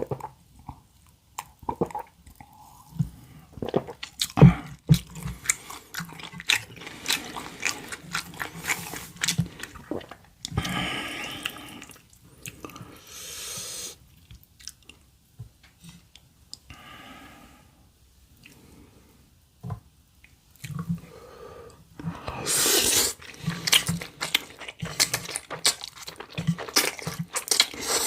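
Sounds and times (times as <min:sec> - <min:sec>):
person chewing food: 0:03.6 - 0:13.0, 0:14.2 - 0:15.0, 0:22.3 - 0:28.0.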